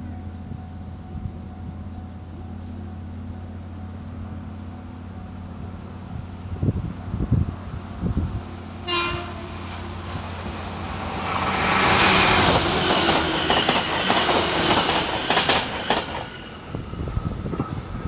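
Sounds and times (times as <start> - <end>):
train rushing past: 3.7 - 18.0
train horn blast: 8.8 - 9.9.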